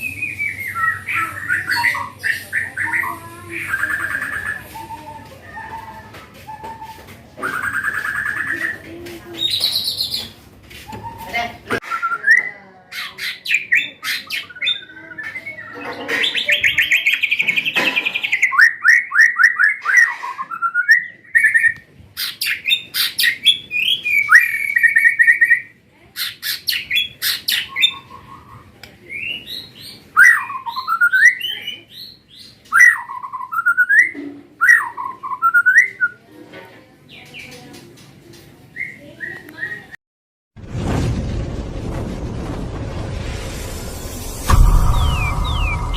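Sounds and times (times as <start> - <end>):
swooping whistled bird phrases: 0.0 - 8.8, 18.4 - 21.8, 30.2 - 31.6, 44.5 - 45.9
chattering bird trills: 0.0 - 10.4, 11.0 - 36.0
songbirds singing: 0.0 - 36.2.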